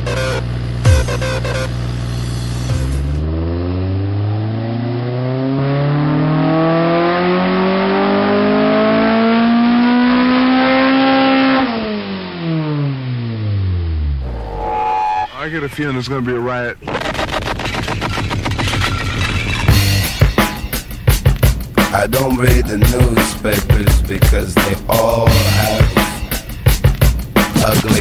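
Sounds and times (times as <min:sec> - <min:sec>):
electronic music: 0:00.0 - 0:04.2, 0:10.2 - 0:28.0
car engine revving: 0:00.0 - 0:28.0.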